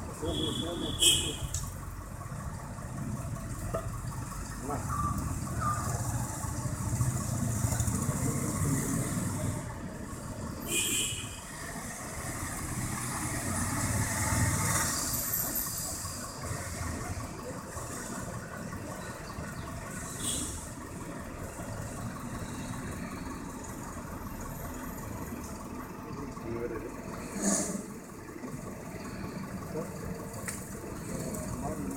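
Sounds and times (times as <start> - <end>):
truck engine idling: 0.0 - 31.9.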